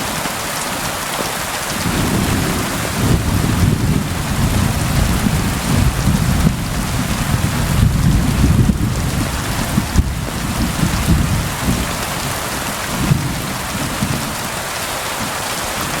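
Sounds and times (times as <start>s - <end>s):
rain hissing: 0.0s - 16.0s
distant thunder rumble: 1.8s - 14.4s.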